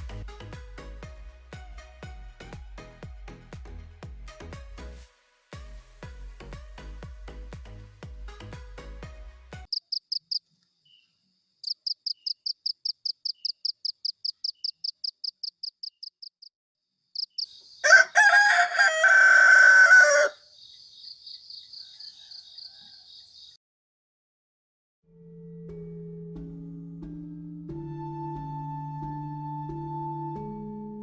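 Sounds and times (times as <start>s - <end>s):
music with a beat: 0.0s - 5.0s, 5.6s - 9.7s
rapid high chirps: 11.6s - 16.5s, 17.2s - 17.6s
rooster crowing: 17.8s - 20.5s, 21.7s - 23.4s.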